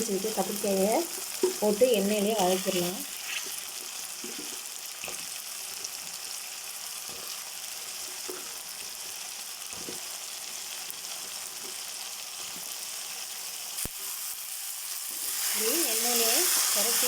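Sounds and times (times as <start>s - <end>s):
vegetables sizzling in hot oil: 0.0s - 17.0s
spoon scraping pan: 1.1s - 5.2s.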